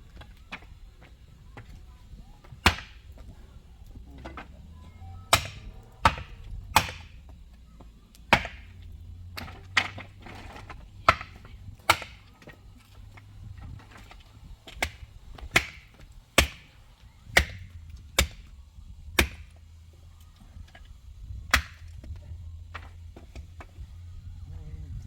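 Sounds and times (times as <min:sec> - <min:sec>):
hand tool chopping wood: 0:02.5 - 0:03.2, 0:05.3 - 0:07.2, 0:08.2 - 0:12.6, 0:13.7 - 0:16.7, 0:17.3 - 0:18.5, 0:19.2 - 0:19.6, 0:21.5 - 0:23.7.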